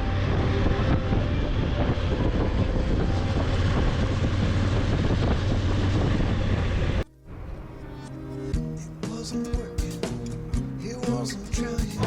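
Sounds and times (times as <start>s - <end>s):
wind on microphone: 0.0s - 7.9s
low engine drone: 0.0s - 10.6s.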